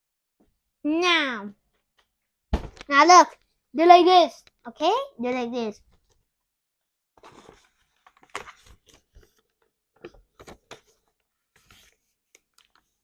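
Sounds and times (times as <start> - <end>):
paper being folded and creased: 7.2 - 9.7, 10.3 - 13.0.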